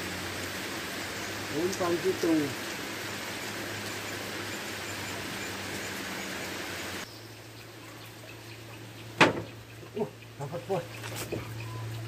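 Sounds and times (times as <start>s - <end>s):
rain falling on pond: 0.0s - 12.0s
loud sharp knock: 9.2s - 9.5s.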